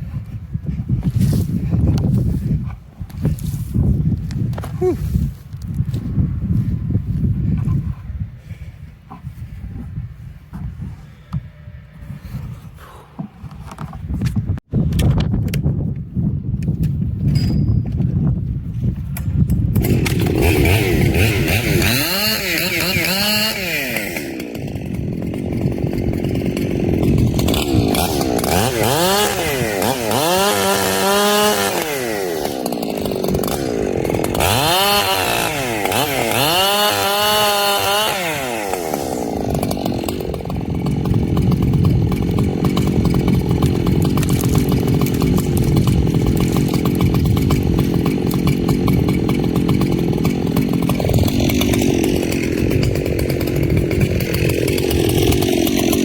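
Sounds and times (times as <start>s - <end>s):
chainsaw revving: 19.8s - 56.0s.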